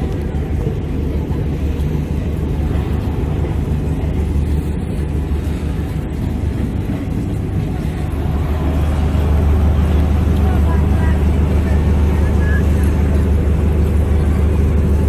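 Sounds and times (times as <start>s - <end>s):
train coaches rumbling past: 0.0s - 15.0s.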